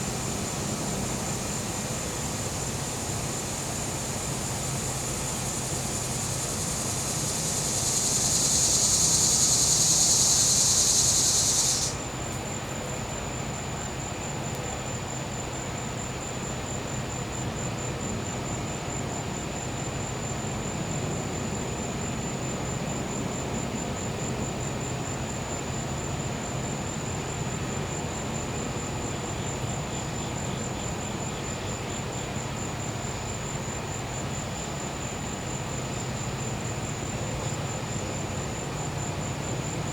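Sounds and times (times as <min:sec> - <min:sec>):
cicada buzzing: 0:00.0 - 0:13.8
cricket trilling: 0:00.0 - 0:39.9.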